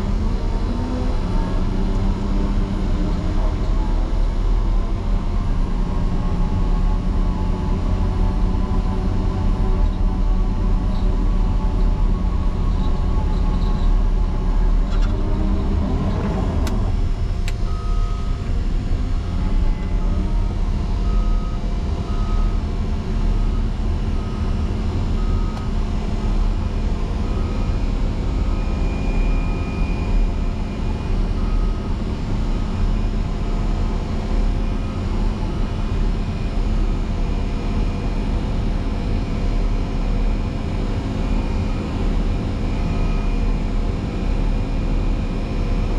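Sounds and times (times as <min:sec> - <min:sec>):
diesel engine under load: 0:00.0 - 0:45.9
reverse alarm beeping: 0:17.6 - 0:18.4.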